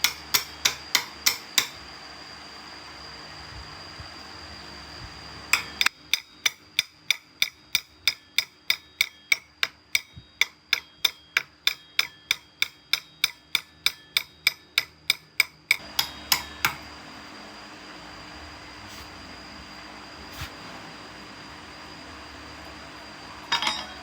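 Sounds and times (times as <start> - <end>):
metallic tapping with ringing tone: 0.0 - 1.8, 5.5 - 16.9, 23.4 - 24.0.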